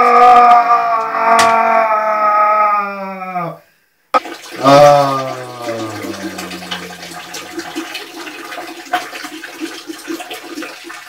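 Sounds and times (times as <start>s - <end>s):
urine splashing into toilet water: 4.2s - 11.0s
person groaning: 4.6s - 7.7s.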